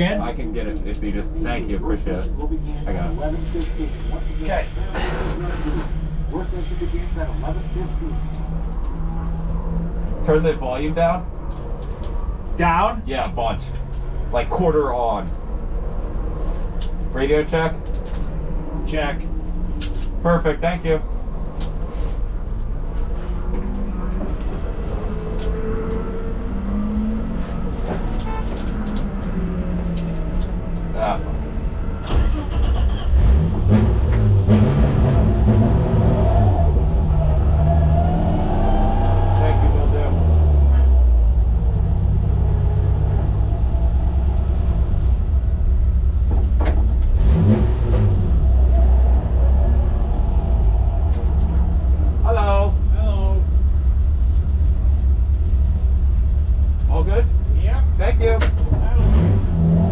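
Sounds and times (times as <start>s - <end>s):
car engine idling: 0.0s - 23.5s, 24.2s - 59.9s.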